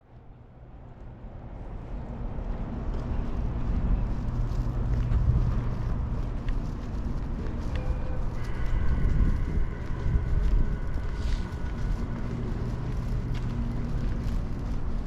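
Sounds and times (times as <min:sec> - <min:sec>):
vehicle engine rumble: 0:00.2 - 0:15.0.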